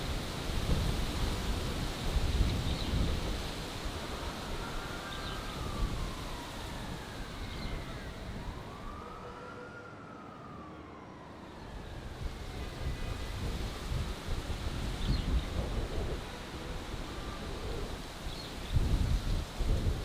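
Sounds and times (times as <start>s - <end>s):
distant siren wailing: 0.1s - 20.0s.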